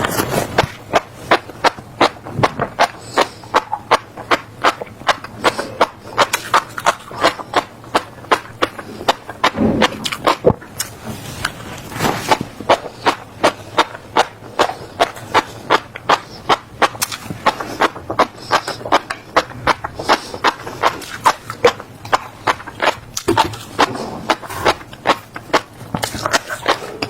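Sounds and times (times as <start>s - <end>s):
chewing crunchy seeds: 0.0s - 27.0s.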